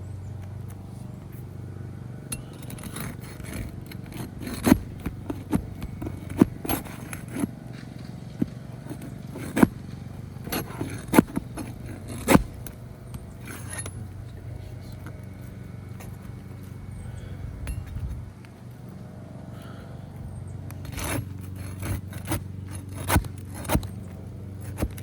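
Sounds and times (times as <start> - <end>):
low background hum: 0.0 - 25.0
hand tools clicking and knocking: 2.3 - 14.3, 20.6 - 25.0.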